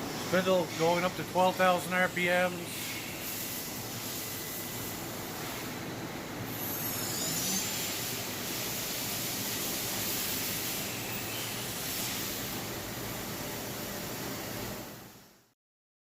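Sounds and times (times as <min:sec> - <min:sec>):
thin high whine: 0:06.4 - 0:12.5
machine spindle whirring: 0:06.4 - 0:12.6.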